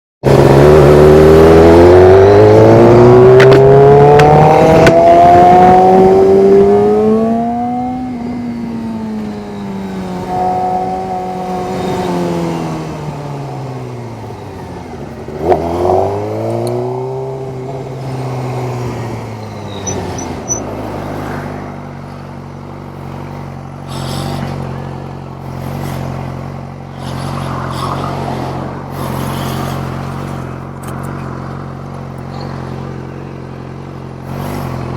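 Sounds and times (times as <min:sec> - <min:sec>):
motorcycle engine revving: 0:00.2 - 0:34.9
motorcycle engine idling: 0:29.2 - 0:34.9.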